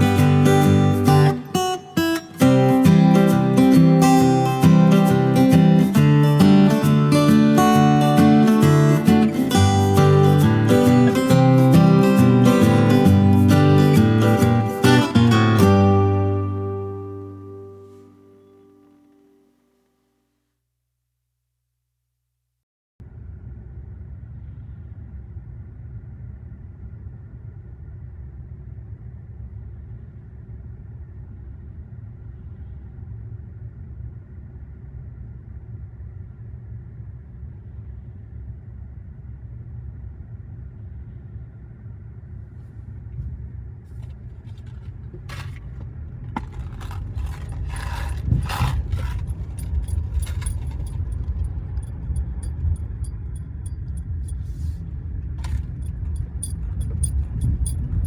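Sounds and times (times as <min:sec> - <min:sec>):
car driving rumble: 0:00.0 - 0:18.2, 0:40.6 - 0:58.0
clicks and scraping knocks: 0:43.9 - 0:54.8.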